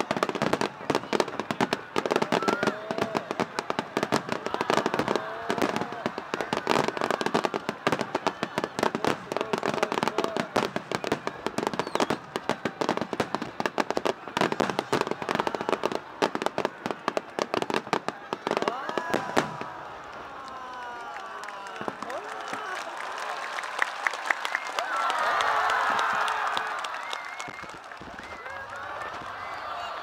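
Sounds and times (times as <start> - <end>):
fireworks bangs and crackles: 0.0 - 20.3, 21.7 - 22.6, 27.4 - 30.0.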